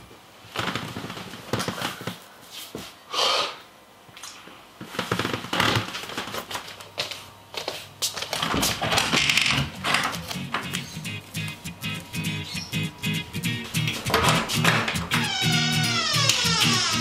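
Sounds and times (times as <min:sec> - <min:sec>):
foot scuffs: 0:06.8 - 0:08.8.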